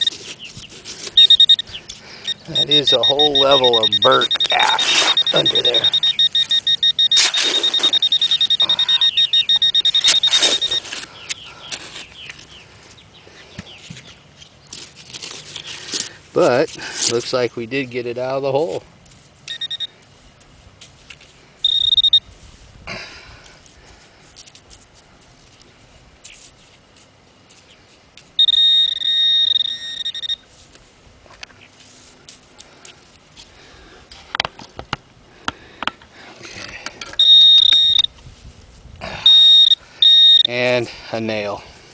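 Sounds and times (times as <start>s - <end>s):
metal detector alert tone: 0.0s - 0.2s, 1.2s - 11.0s, 19.5s - 19.9s, 21.6s - 22.2s, 28.4s - 30.4s, 37.1s - 38.1s, 39.2s - 40.6s
digging in sand: 0.0s - 12.9s, 13.7s - 17.6s
high-pitched pulsing beep: 1.2s - 1.7s, 2.3s - 10.9s, 19.5s - 19.9s, 21.7s - 22.2s, 28.4s - 30.4s, 37.2s - 38.1s, 39.3s - 40.5s.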